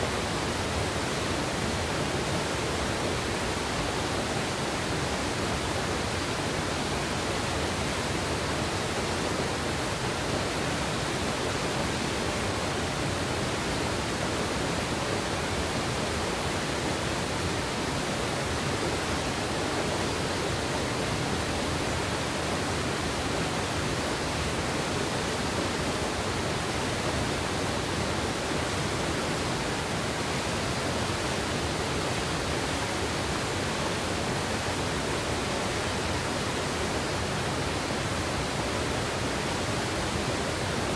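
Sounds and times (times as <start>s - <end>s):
river water rushing over rocks: 0.0s - 40.9s.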